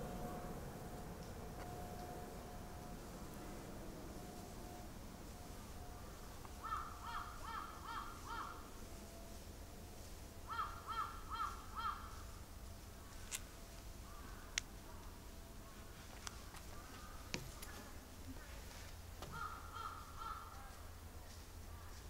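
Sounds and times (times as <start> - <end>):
bird calling repeated notes: 6.5 - 8.7, 10.4 - 12.4, 19.2 - 20.8.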